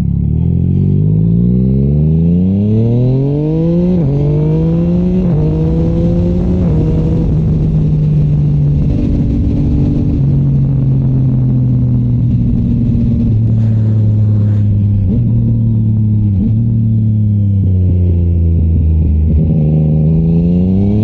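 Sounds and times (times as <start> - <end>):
motorcycle engine while riding: 0.0 - 21.0
engine revving blips: 12.9 - 18.3
rushing noise: 13.1 - 15.9.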